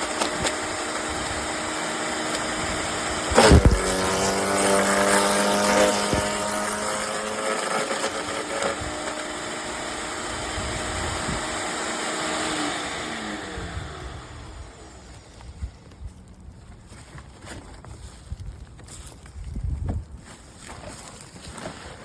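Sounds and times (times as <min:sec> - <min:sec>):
rough grinding noise: 0:00.0 - 0:15.2
wood chipper motor humming: 0:00.0 - 0:16.5.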